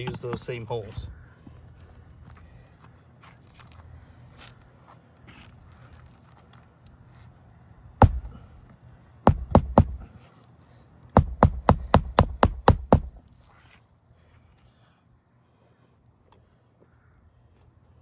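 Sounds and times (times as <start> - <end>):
hammer driving roofing nails: 8.0 - 8.5, 9.3 - 10.1, 11.2 - 13.2.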